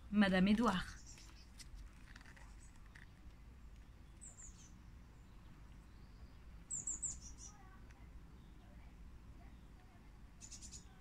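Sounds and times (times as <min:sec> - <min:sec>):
small bird chirping: 0:00.7 - 0:11.0.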